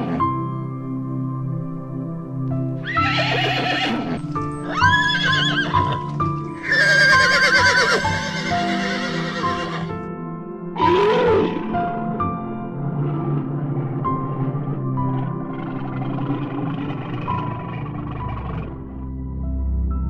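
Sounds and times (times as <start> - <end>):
horses whinnying: 0.0 - 0.4, 2.8 - 9.9, 10.8 - 12.2, 12.8 - 18.8
background music with sustained tones: 0.0 - 20.0.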